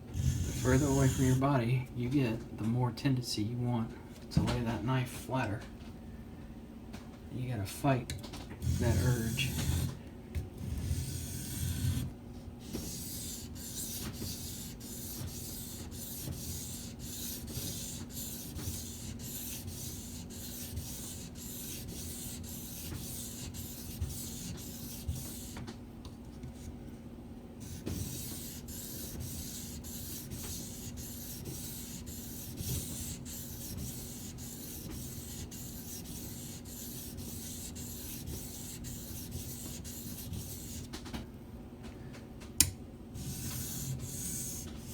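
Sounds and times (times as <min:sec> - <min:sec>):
knife scraping on whetstone: 0:00.2 - 0:01.4, 0:08.6 - 0:10.0, 0:10.6 - 0:12.1, 0:12.7 - 0:25.6, 0:27.6 - 0:40.9, 0:43.2 - 0:44.9.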